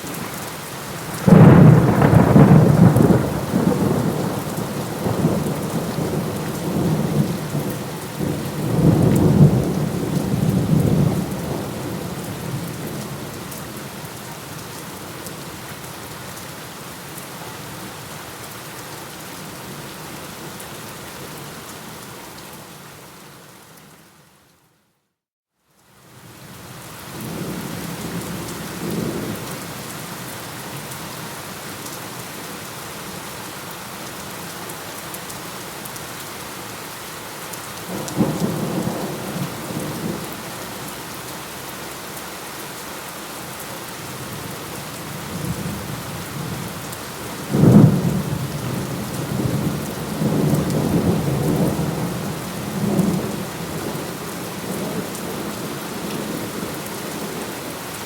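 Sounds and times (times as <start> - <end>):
steady rain: 0.0 - 25.0, 25.6 - 58.0
thunder rumbling: 1.0 - 13.3
loud thunderclap: 1.2 - 4.4.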